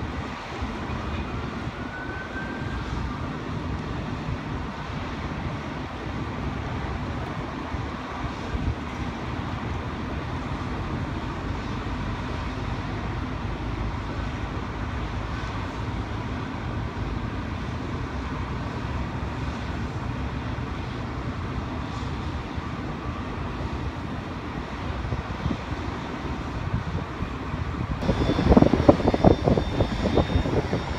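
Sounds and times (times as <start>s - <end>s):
wind buffeting microphone: 0.0s - 12.0s, 24.1s - 30.9s
jet engines rumbling: 0.0s - 30.9s.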